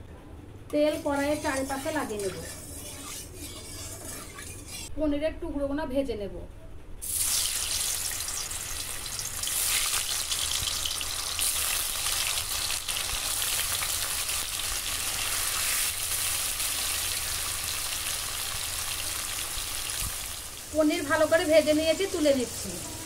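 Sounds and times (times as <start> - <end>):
cheese frying in oil: 7.0 - 22.9.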